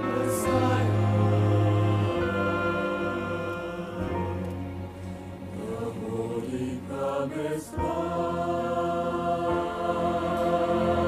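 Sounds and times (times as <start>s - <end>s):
choir singing wordless notes: 0.0s - 11.0s
sustained gospel chords: 0.0s - 11.0s.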